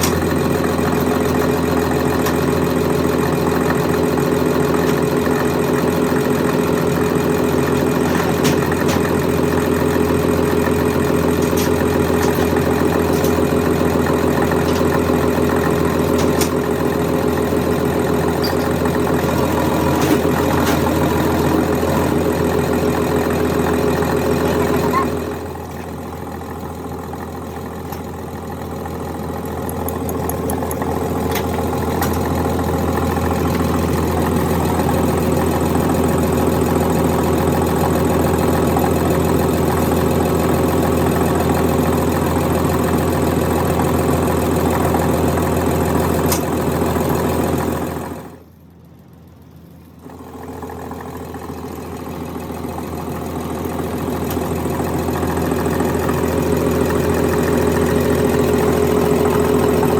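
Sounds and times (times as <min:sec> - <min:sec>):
machine motor humming: 0:10.1 - 0:38.8.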